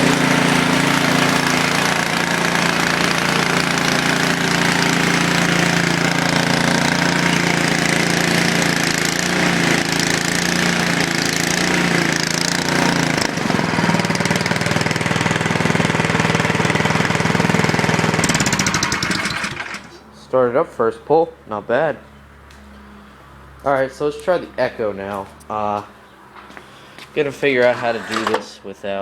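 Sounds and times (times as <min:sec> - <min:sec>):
snowblower engine running: 0:00.0 - 0:20.0.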